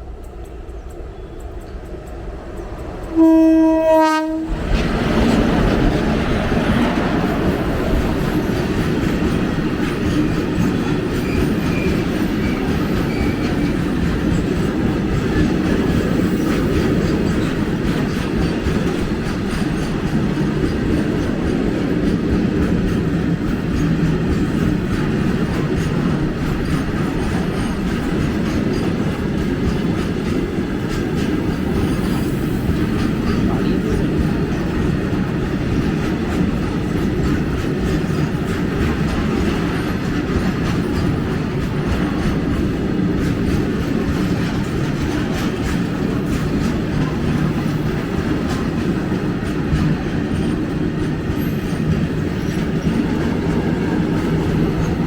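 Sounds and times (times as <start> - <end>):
freight train rumble and wheel clatter: 0.0 - 55.0
locomotive horn: 3.1 - 4.6.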